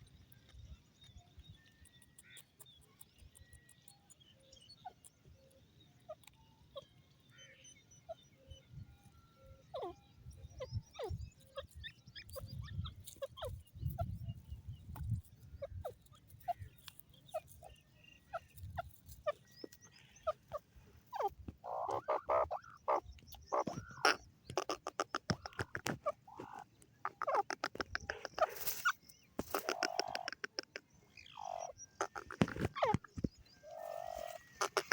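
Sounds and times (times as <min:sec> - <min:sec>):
francolin calling: 0:01.7 - 0:34.9.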